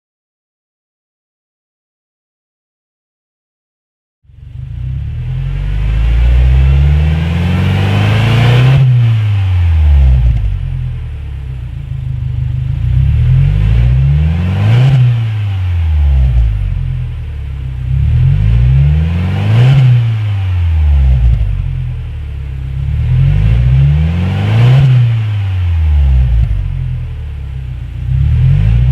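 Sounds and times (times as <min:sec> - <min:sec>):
car engine revving: 0:04.3 - 0:28.9.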